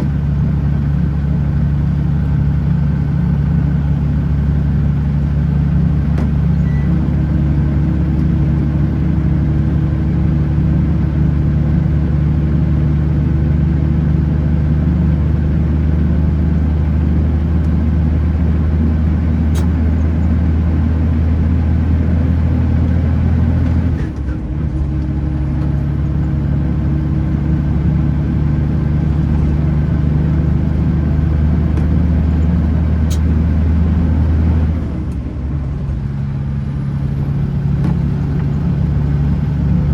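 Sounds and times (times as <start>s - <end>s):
road noise: 0.0s - 39.9s
truck engine droning: 0.0s - 39.9s.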